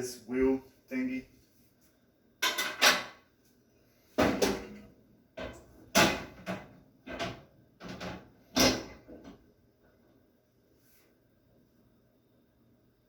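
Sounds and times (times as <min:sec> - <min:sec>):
microwave parts knocking: 0:05.4 - 0:09.4.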